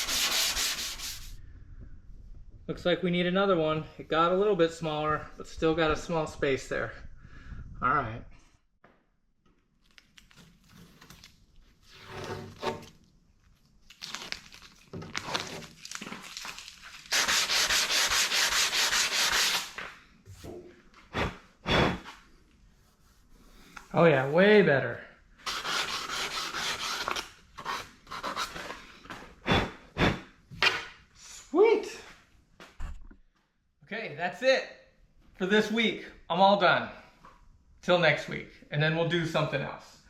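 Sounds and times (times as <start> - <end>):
hand sanding rubbing strokes: 0.0 - 1.4, 17.1 - 19.8, 25.4 - 28.8.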